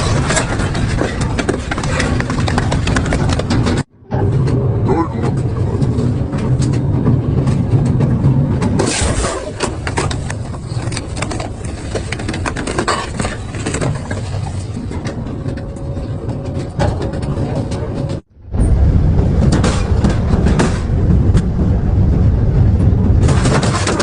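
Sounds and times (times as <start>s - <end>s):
material cracking and crunching: 8.6s - 15.6s.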